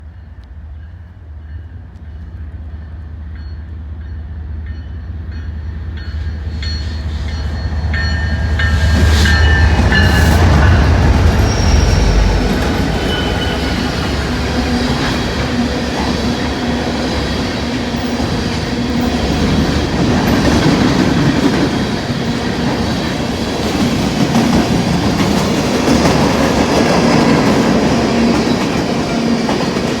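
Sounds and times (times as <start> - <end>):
train wheels on rails: 0.0 - 30.0
locomotive engine rumble: 6.3 - 21.5.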